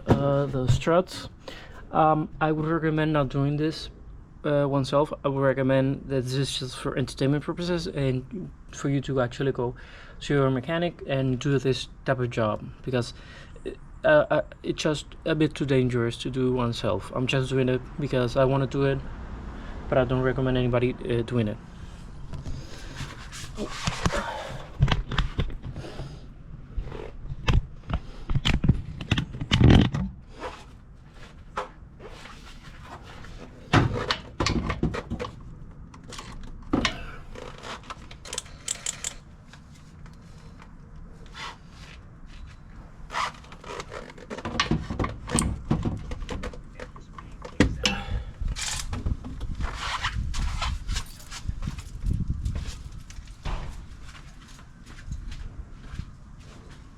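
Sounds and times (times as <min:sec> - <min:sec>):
hand tools and metal parts clanking: 0:36.0 - 0:40.7, 0:42.3 - 0:49.2, 0:49.8 - 0:54.1.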